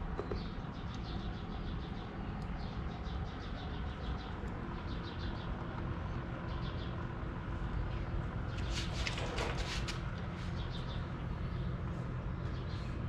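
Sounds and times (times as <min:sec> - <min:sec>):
low steady rumble: 0:00.0 - 0:13.0
small birds chirping: 0:00.0 - 0:13.0.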